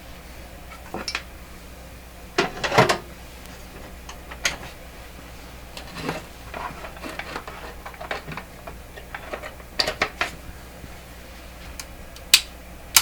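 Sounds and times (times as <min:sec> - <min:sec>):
parts and tools clattering: 0:00.7 - 0:01.3, 0:02.4 - 0:03.1, 0:03.8 - 0:04.8, 0:05.7 - 0:10.4.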